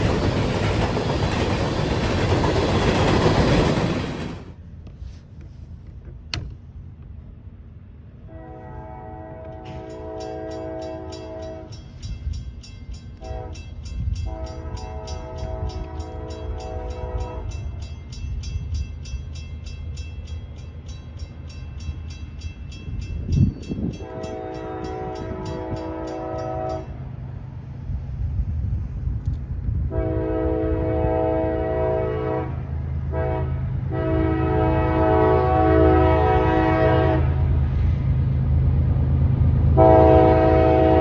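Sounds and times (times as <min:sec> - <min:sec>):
low rumble of passing train: 0:00.0 - 0:41.0
locomotive air horn blasts: 0:08.2 - 0:11.8, 0:13.2 - 0:17.6, 0:24.0 - 0:27.0, 0:29.8 - 0:37.6, 0:39.8 - 0:41.0
grade-crossing bell ringing: 0:09.7 - 0:27.0.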